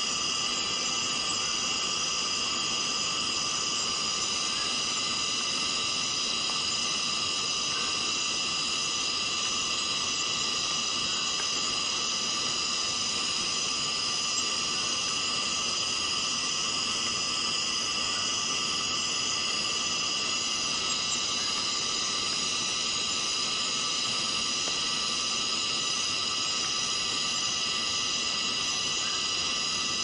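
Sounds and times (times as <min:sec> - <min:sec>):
cicadas droning: 0:00.0 - 0:30.0.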